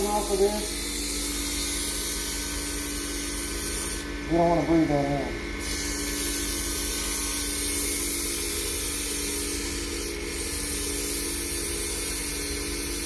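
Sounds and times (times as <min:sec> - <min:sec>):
sandpaper hissing against spinning wood: 0:00.0 - 0:04.1, 0:05.6 - 0:13.0
machine motor hum: 0:00.0 - 0:13.0.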